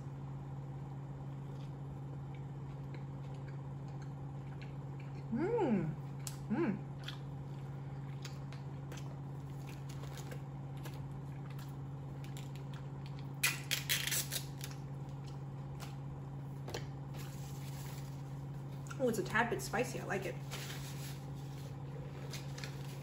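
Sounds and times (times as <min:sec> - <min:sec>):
low steady hum: 0:00.0 - 0:23.0
person chewing food: 0:01.3 - 0:05.4, 0:06.0 - 0:13.4.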